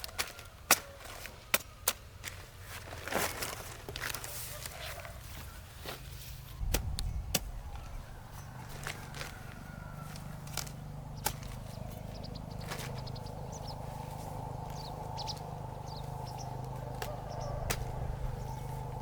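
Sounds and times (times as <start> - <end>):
steady low hum: 6.6 - 19.0
high bird chirps: 11.0 - 19.0.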